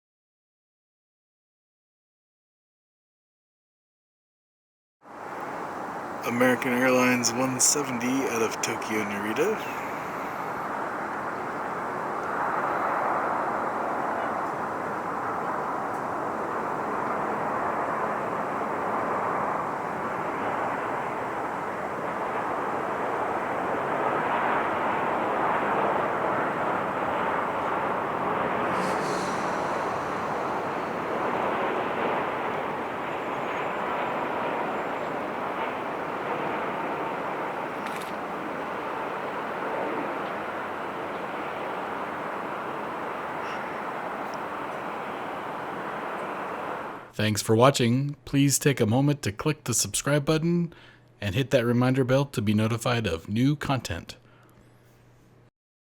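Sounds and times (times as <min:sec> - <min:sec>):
jet plane landing: 0:05.2 - 0:47.3.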